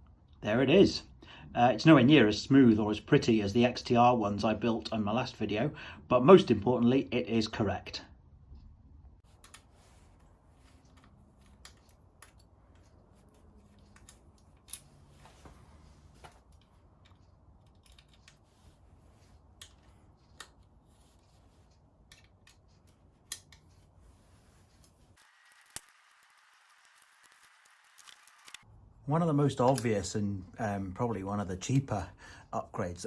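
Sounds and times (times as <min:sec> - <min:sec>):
small clicks and light knocks: 0:16.2 - 0:18.4, 0:19.5 - 0:20.8, 0:21.6 - 0:23.8.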